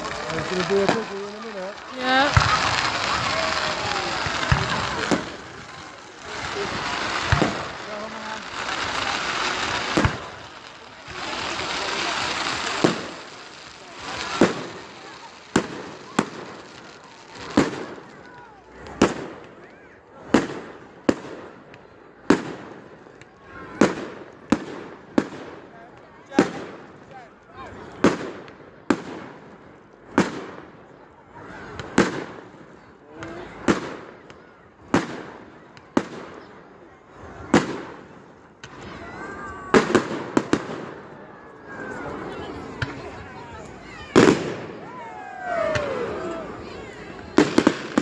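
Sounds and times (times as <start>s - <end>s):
rising firework hiss: 0.0s - 19.3s, 37.1s - 48.0s
fireworks bangs: 0.0s - 48.0s
fireworks crackling: 0.0s - 48.0s.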